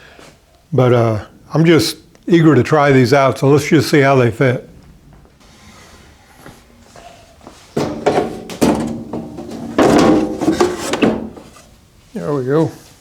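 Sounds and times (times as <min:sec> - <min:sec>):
wooden inserts scraping: 0:07.7 - 0:11.8
drawer sliding and knocking: 0:07.8 - 0:11.7.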